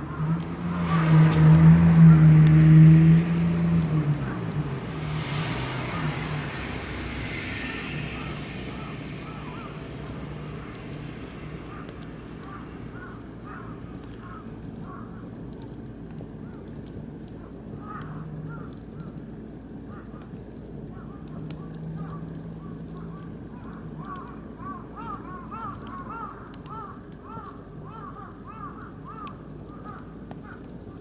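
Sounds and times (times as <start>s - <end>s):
low rumble: 0.0s - 14.9s
wood fire crackling and popping: 0.0s - 31.0s
birds chirping: 8.2s - 15.0s.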